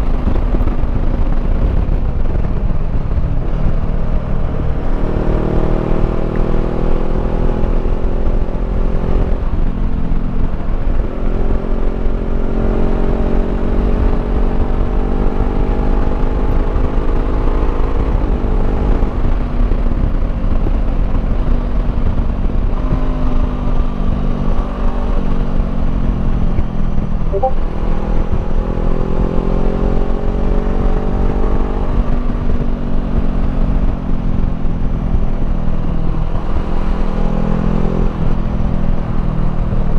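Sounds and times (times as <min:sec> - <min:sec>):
wind rumble: 0:00.0 - 0:16.9.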